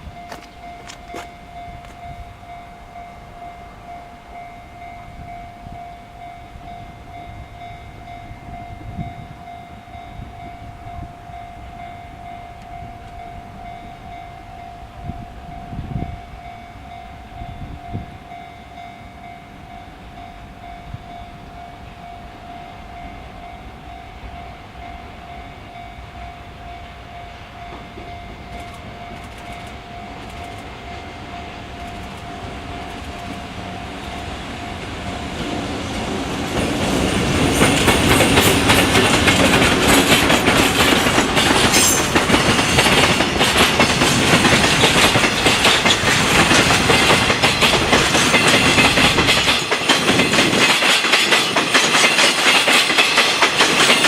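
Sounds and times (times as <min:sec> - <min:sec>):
train wheels and couplings knocking: 0:00.0 - 0:02.2, 0:27.6 - 0:54.0
level crossing alarm ringing: 0:00.0 - 0:35.8
freight train rumbling: 0:00.0 - 0:54.0.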